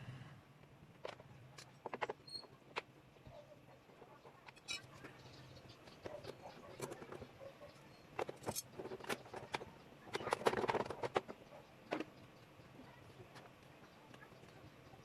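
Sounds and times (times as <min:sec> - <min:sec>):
hand tools clicking and clinking: 0:08.2 - 0:11.4.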